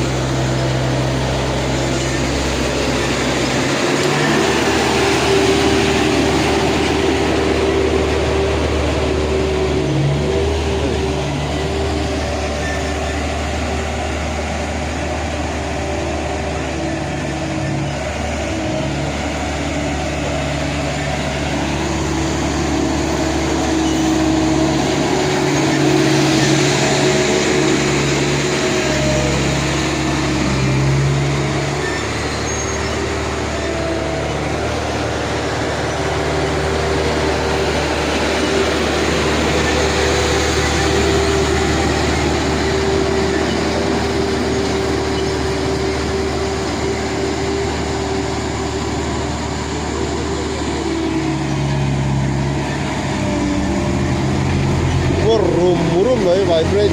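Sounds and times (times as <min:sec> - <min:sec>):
road roller engine running: 0:00.0 - 0:56.9.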